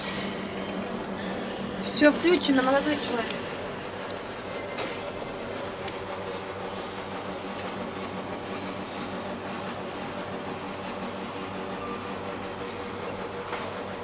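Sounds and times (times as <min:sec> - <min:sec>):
elevator car hum: 0:00.0 - 0:14.0.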